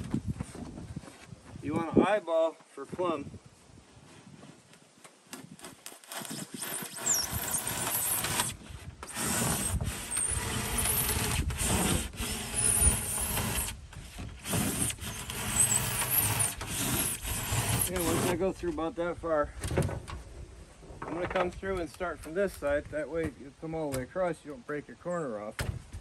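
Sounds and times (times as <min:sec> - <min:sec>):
saw cutting foam board: 0:05.4 - 0:18.5.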